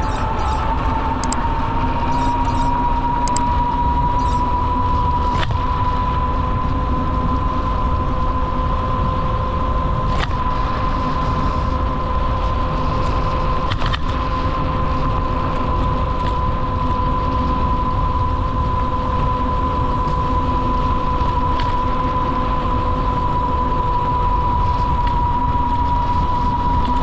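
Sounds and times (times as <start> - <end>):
high-pitched whine: 0.0 - 0.7, 2.1 - 2.8, 4.2 - 4.5.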